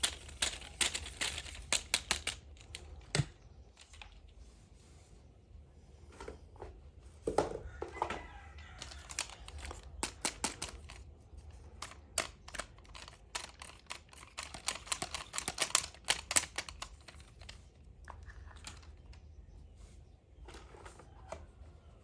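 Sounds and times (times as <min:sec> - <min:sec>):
plastic toy pieces clicking: 0:00.0 - 0:04.2, 0:08.8 - 0:19.2.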